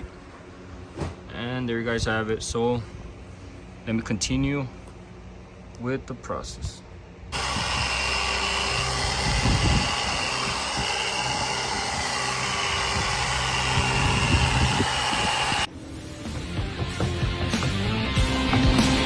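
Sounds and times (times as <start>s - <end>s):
electric car polisher motor whine: 7.3s - 15.7s.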